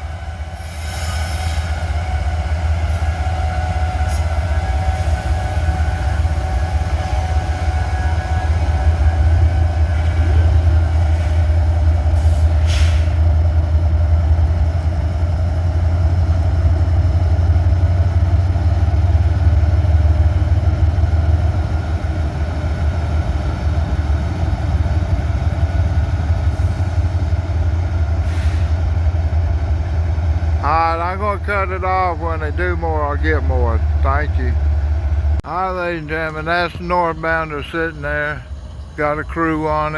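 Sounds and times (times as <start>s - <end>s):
diesel locomotives rumbling: 0.0s - 39.9s
short hiss: 12.2s - 13.2s.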